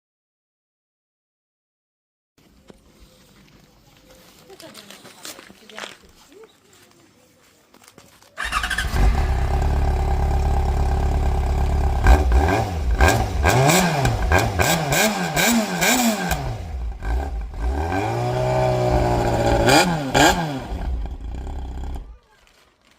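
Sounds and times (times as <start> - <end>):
motorcycle engine revving: 8.4 - 22.2
motorcycle engine starting and idling: 8.4 - 22.6.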